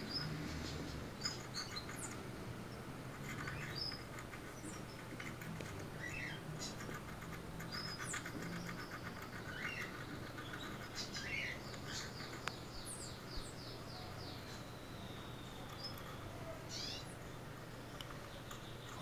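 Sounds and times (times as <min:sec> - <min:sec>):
faint birds chirping: 0:00.0 - 0:19.0
low steady hum: 0:00.0 - 0:19.0.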